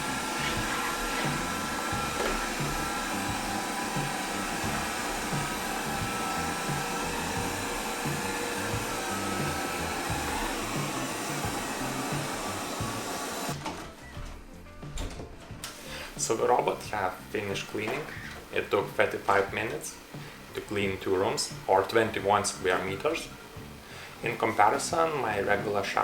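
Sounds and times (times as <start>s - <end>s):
robot vacuum running: 0.0s - 13.6s.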